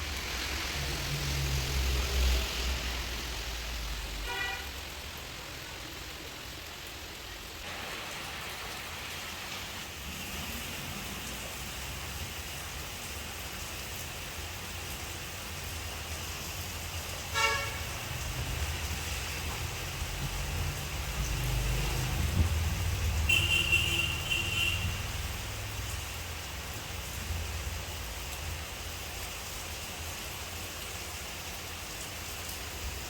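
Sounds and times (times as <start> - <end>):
rain-like hiss: 0.0 - 33.0
vehicle horn toot: 4.2 - 4.7, 17.4 - 17.8, 23.3 - 25.0.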